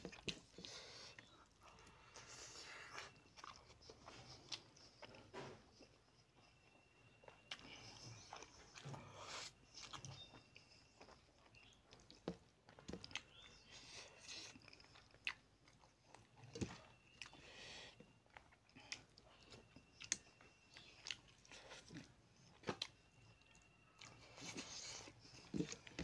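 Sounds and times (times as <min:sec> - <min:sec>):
chewing and lip smacks: 0:00.0 - 0:26.0.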